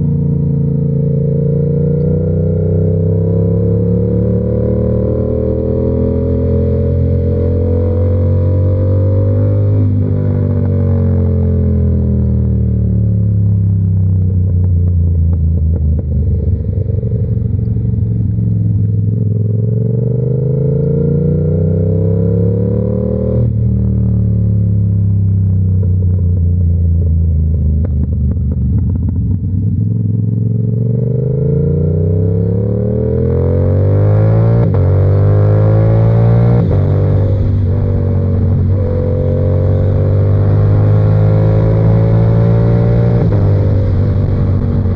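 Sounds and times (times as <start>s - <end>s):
motorcycle engine revving: 0.0s - 44.9s
wind rush: 43.2s - 44.9s.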